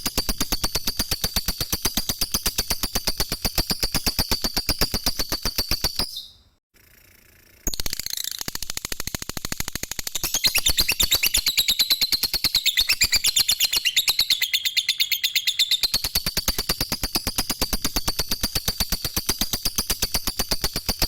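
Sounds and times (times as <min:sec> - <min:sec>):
lovebird chattering: 0:10.2 - 0:17.2.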